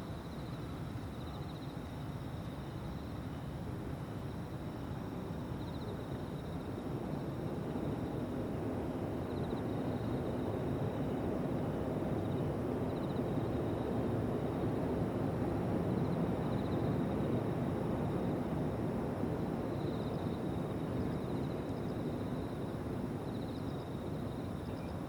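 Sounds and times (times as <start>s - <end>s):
insects trilling: 9.2s - 14.9s, 19.6s - 25.0s.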